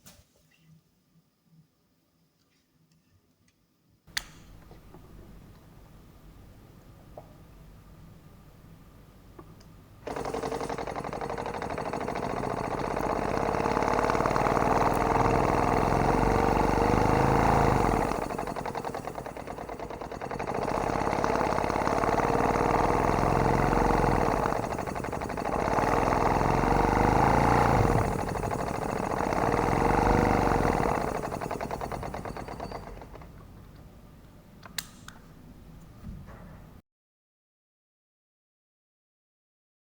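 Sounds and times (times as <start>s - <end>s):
small air pump running: 10.0s - 33.7s.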